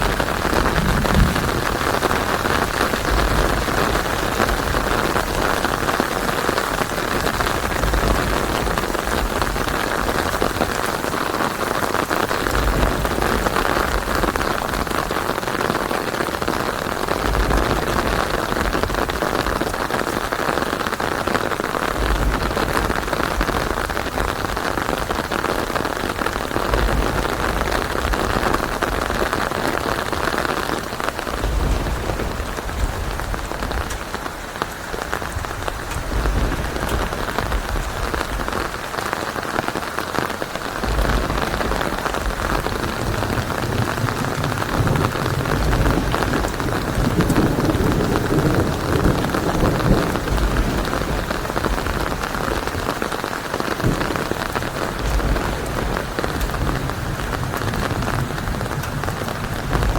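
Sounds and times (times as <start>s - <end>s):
heavy rain: 0.0s - 59.9s
thunder rumbling: 0.0s - 59.9s.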